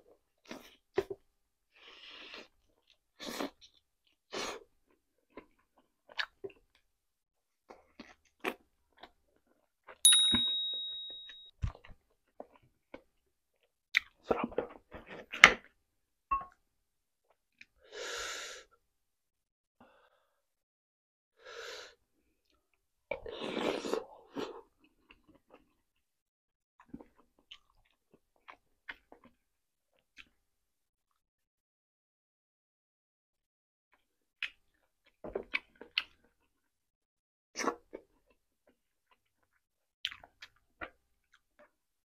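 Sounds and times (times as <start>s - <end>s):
bright ding: 10.1s - 11.5s.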